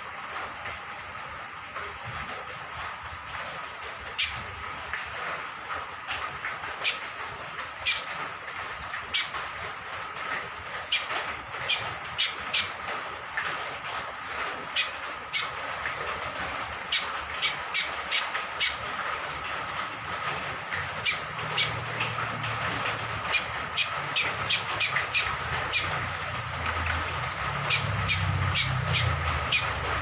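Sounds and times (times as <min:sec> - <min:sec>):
rain hissing: 0:18.7 - 0:30.0.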